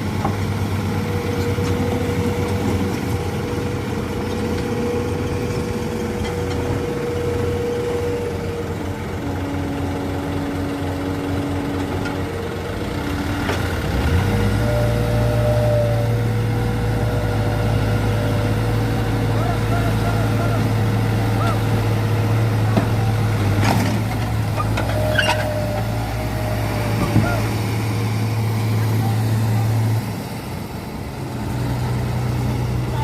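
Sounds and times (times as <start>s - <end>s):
diesel truck engine running: 0.0s - 33.0s.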